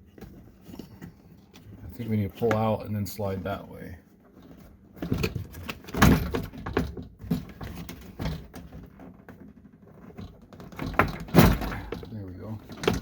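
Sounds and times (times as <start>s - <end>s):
plastic panel knocking and clunking: 5.0s - 13.0s.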